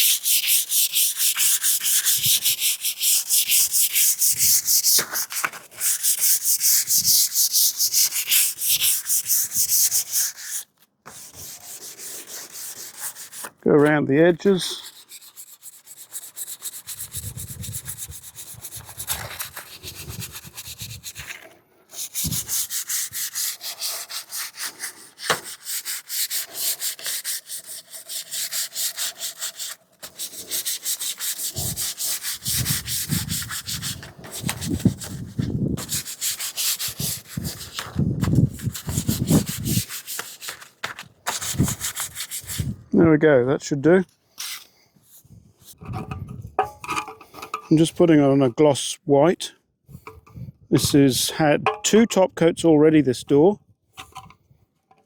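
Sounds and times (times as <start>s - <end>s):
sandpaper rubbing on a door: 0.0s - 13.6s, 14.6s - 42.8s.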